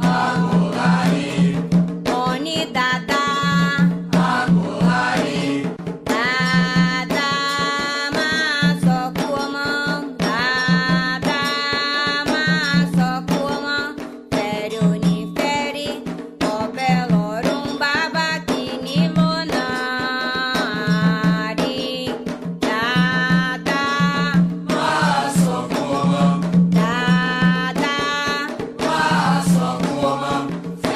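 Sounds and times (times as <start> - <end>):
person singing a chant: 0.0 - 1.6, 22.8 - 30.9
hand drums beating: 0.0 - 30.9.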